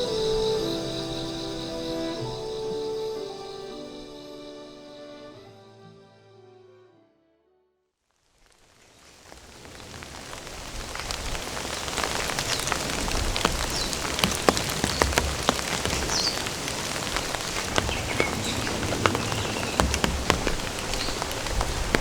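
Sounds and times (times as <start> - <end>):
steady rain: 0.0 - 3.7, 8.1 - 22.0
raindrops ticking on a surface: 8.2 - 22.0.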